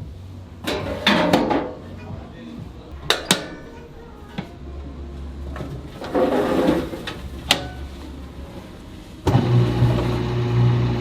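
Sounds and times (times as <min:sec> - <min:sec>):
low steady hum: 0:00.0 - 0:11.0
rough sliding scrape: 0:05.7 - 0:10.2.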